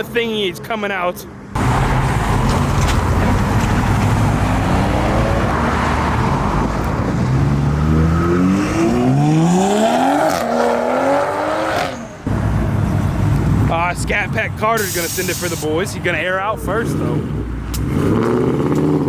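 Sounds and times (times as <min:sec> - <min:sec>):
car engine accelerating: 0:01.6 - 0:13.7.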